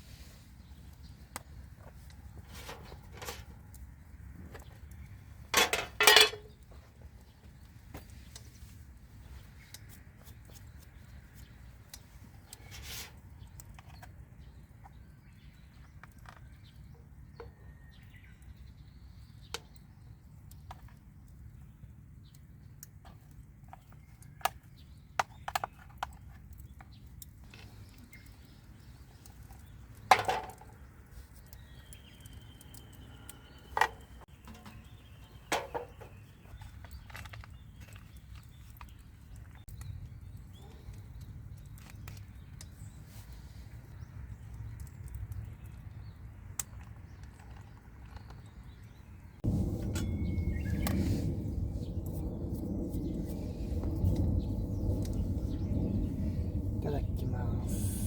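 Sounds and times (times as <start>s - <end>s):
camp gear knocking and clicking: 2.6s - 3.5s, 5.5s - 6.7s, 30.0s - 30.8s, 33.8s - 38.5s
steady low rumble: 49.4s - 58.0s.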